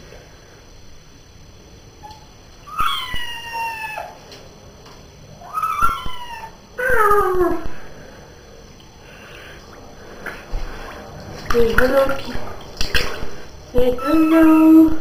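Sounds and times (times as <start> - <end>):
cat meowing: 2.6 - 4.2, 5.4 - 7.7.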